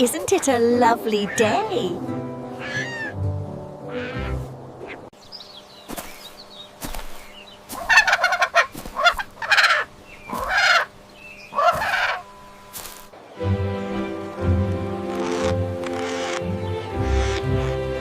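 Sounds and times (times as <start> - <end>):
poultry harsh pulsing calls: 2.5 - 3.2, 3.9 - 5.1, 7.5 - 12.3, 15.1 - 16.4, 17.0 - 17.8.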